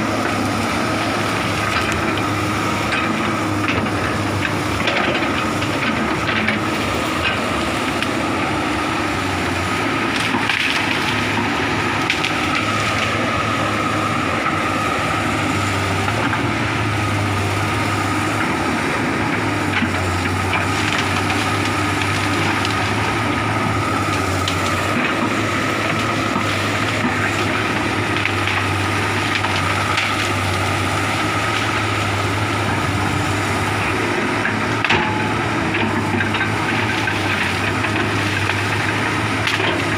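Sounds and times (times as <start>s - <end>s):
excavator engine running: 0.0s - 39.9s
wood cracking and splintering: 9.2s - 13.2s, 18.2s - 39.9s.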